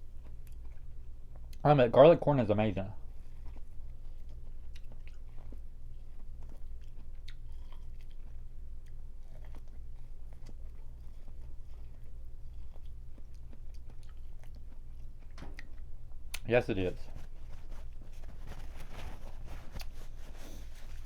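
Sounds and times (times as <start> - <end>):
chewing and biting food: 0.0 - 1.6, 3.0 - 21.0
steady low hum: 0.0 - 21.0.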